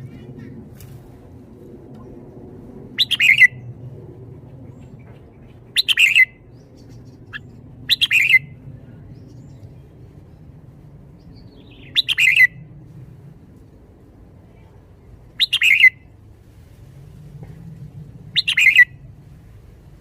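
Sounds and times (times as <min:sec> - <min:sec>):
faint low hum: 0:00.0 - 0:20.0
bird chirping phrases: 0:04.8 - 0:10.5, 0:11.2 - 0:12.6, 0:15.3 - 0:16.1, 0:18.4 - 0:18.9.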